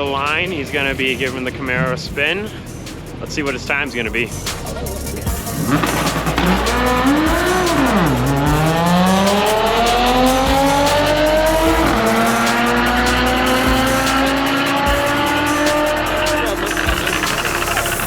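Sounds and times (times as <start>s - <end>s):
car engine at full throttle: 5.3s - 18.0s.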